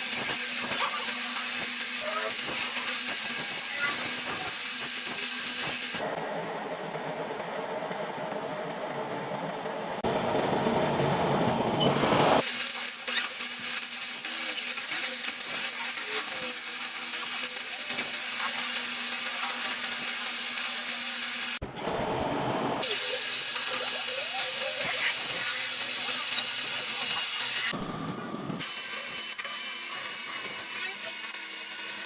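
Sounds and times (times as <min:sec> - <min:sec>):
metal lathe cutting hiss: 0:00.0 - 0:06.0, 0:12.4 - 0:21.6, 0:22.8 - 0:27.7, 0:28.6 - 0:32.0
machine hum: 0:00.0 - 0:32.0
low rumbling: 0:27.8 - 0:28.6.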